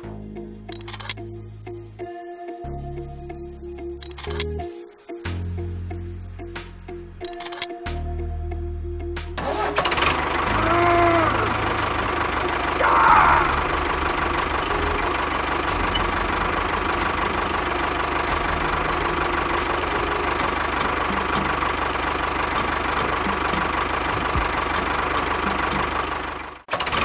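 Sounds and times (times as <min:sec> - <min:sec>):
engine idling with knocking beat: 0:10.2 - 0:27.0.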